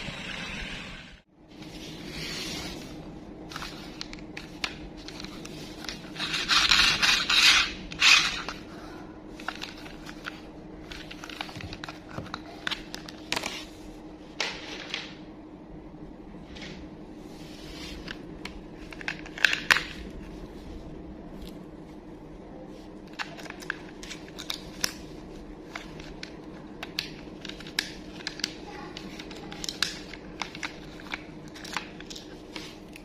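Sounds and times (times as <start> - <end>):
packaging scraping and rustling: 1.7 - 8.7.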